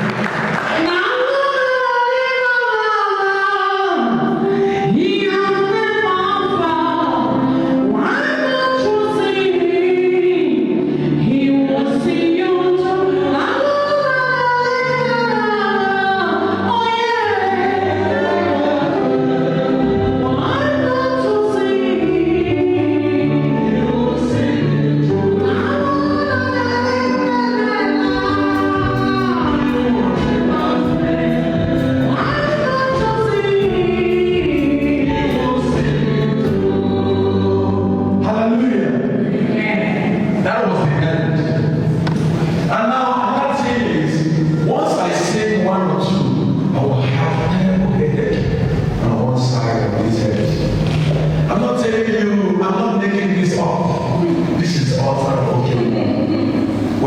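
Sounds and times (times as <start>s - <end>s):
gospel choir singing: 0.0s - 57.0s
low accompaniment: 13.7s - 57.0s.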